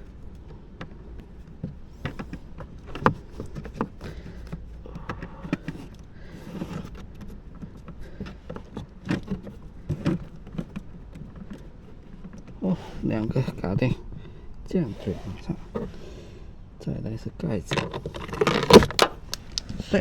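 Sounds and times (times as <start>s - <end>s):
plastic clicks and knocks: 17.7s - 19.8s
rustling: 17.7s - 20.0s.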